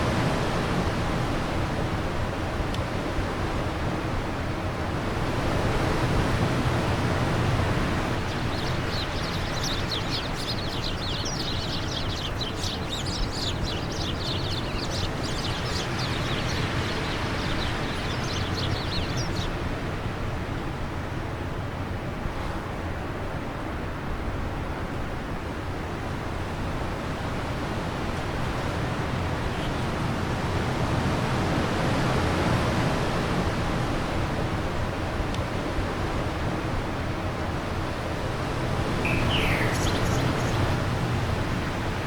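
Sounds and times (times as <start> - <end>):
bird twittering high chirps: 8.0 - 19.6, 38.9 - 42.0.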